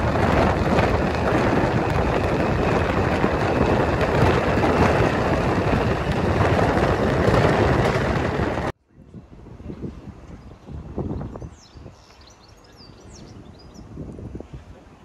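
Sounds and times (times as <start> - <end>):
train passing rushing rumble: 0.0 - 8.8.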